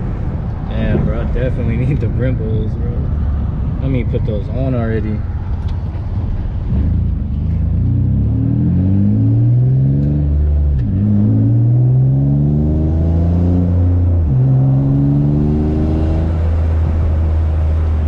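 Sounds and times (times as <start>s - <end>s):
car engine accelerating: 5.1s - 18.0s.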